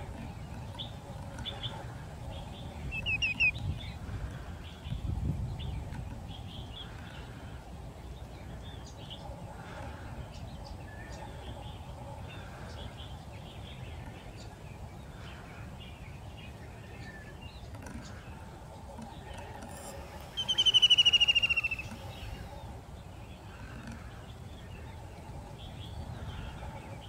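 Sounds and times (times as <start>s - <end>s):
faint bird chirps: 0.1s - 4.0s, 16.7s - 22.8s
trilled bird call sliding down: 19.6s - 22.5s.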